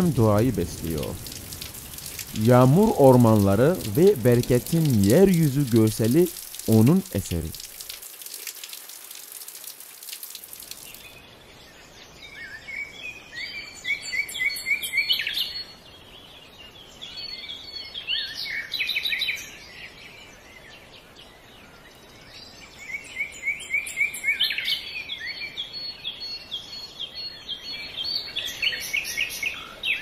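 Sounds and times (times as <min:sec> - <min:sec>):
rain falling: 0:00.0 - 0:11.1
faint outdoor noise: 0:00.0 - 0:30.0
songbird chirping: 0:00.0 - 0:30.0.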